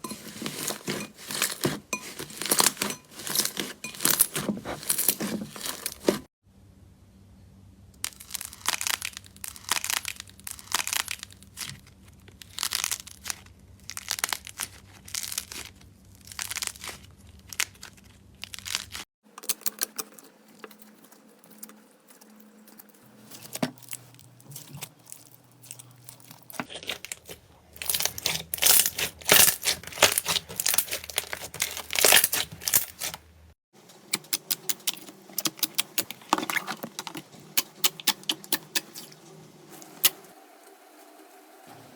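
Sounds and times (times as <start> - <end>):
sticky slime crackles and pops: 8.0 - 19.0, 26.8 - 33.1.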